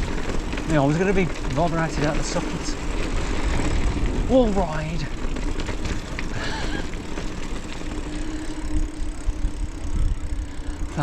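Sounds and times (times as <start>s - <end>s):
faint steady hum: 0.0s - 11.0s
mountain bike rattling over rocks: 0.0s - 11.0s.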